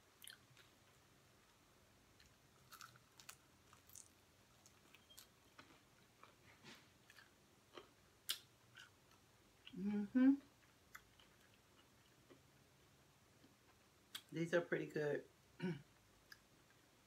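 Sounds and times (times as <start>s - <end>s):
chewing crispy chicken: 0.2s - 1.0s, 2.2s - 9.8s, 10.5s - 12.6s.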